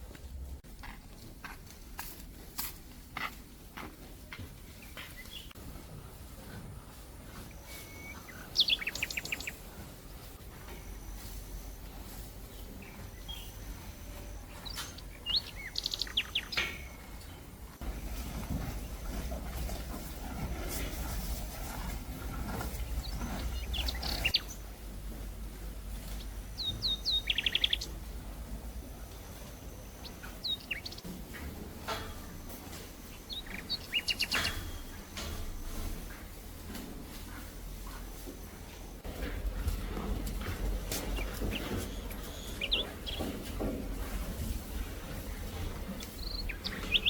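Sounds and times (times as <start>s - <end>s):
low outdoor background rumble: 0.0s - 47.0s
rustle: 0.0s - 47.0s
wild birds chirping: 4.6s - 6.3s, 7.0s - 31.1s, 31.7s - 36.1s, 38.8s - 47.0s
small bird singing: 7.7s - 9.6s, 12.8s - 17.0s, 22.8s - 24.7s, 26.2s - 27.9s, 29.8s - 31.1s, 33.1s - 34.9s, 41.0s - 43.4s, 46.1s - 47.0s.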